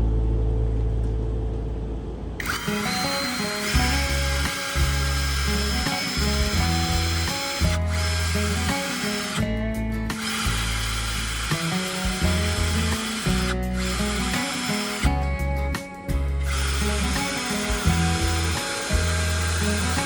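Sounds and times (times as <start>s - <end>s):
power tool running: 2.4s - 9.5s, 10.1s - 15.2s, 16.4s - 20.0s
background music: 2.4s - 20.0s.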